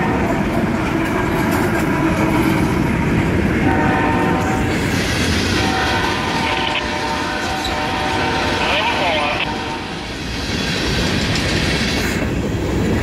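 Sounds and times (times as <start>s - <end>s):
wheels clacking over rail joints: 0.0s - 3.8s, 10.1s - 13.0s
diesel locomotive engines under load: 0.0s - 13.0s
distant locomotive horn chord: 3.6s - 4.6s, 5.6s - 9.9s.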